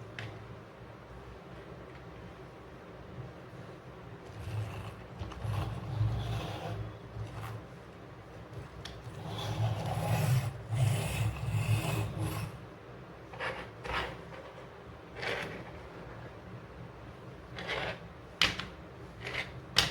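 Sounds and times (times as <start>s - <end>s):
toy vehicles rolling and scraping: 9.1s - 12.6s, 13.3s - 16.3s.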